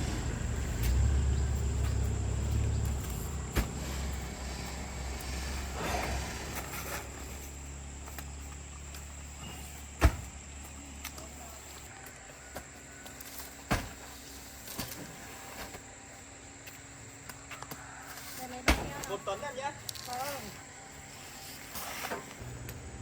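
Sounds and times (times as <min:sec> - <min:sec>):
low engine rumble: 0:00.0 - 0:11.9, 0:22.4 - 0:23.0.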